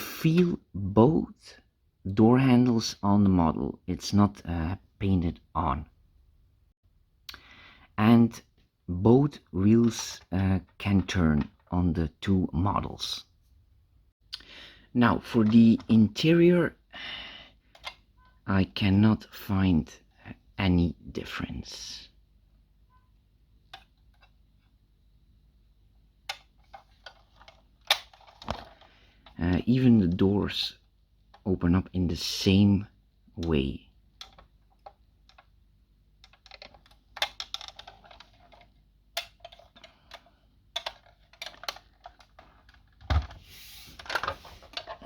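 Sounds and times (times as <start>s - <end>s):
clicks of toy model vans: 17.8s - 18.0s, 26.3s - 29.4s, 36.2s - 42.9s.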